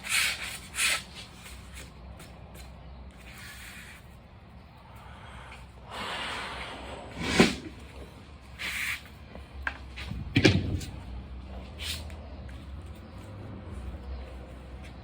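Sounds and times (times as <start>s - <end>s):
objects knocking and clunking: 9.7s - 11.0s.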